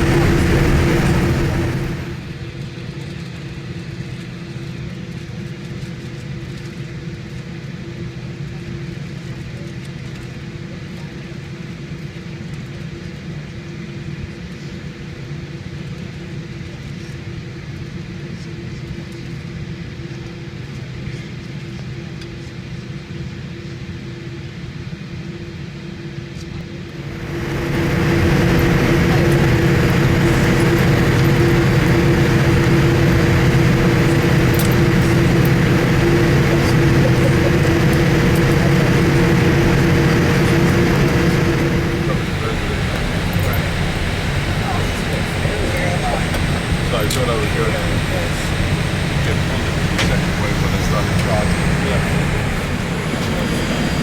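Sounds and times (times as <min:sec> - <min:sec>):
jet engine and cabin hum: 0:00.0 - 0:02.4, 0:27.0 - 0:54.0.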